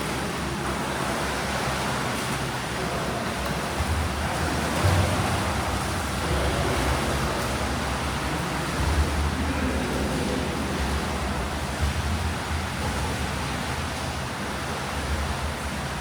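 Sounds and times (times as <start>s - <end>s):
water splashing from swimmers: 0.0s - 16.0s.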